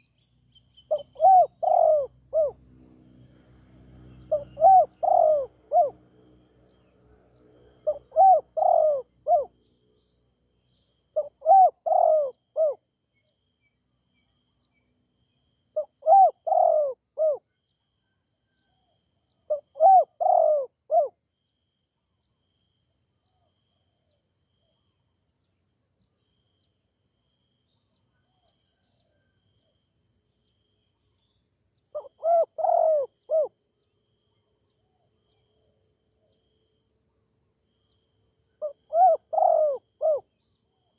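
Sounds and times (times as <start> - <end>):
dove cooing: 0.9 - 2.6, 4.3 - 6.0, 7.8 - 9.5, 11.2 - 12.8, 15.8 - 17.4, 19.5 - 21.1, 31.9 - 33.5, 38.6 - 40.3.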